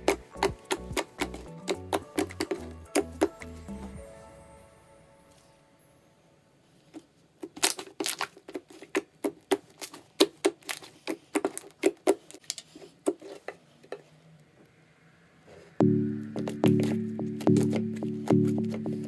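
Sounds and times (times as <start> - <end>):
slime squeezed with sticky pops: 7.4 - 12.4.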